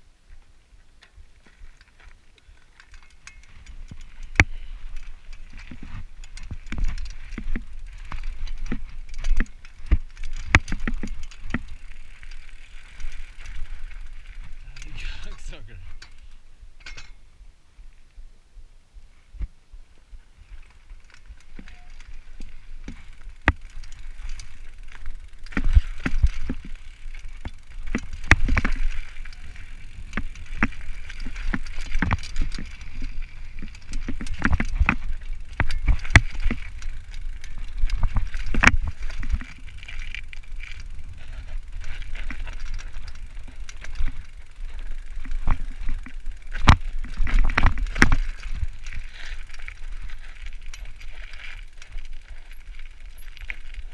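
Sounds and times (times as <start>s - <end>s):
bicycle frame rattling and knocking: 1.0s - 17.2s, 20.6s - 53.9s.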